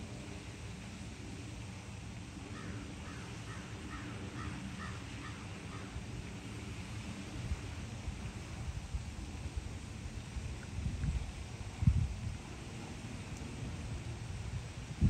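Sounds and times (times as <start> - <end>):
steady low rumble: 5.7 - 15.0.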